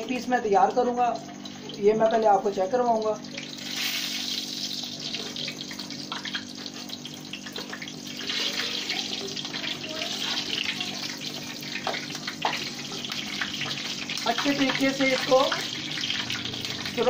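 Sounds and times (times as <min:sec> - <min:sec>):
food frying in hot oil: 0:00.0 - 0:17.0.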